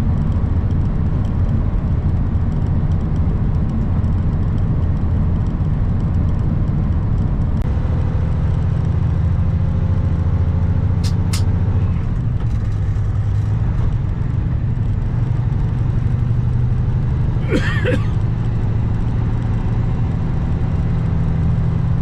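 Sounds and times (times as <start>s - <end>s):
truck diesel engine running: 0.4s - 19.4s
sharp clicks: 11.0s - 11.6s.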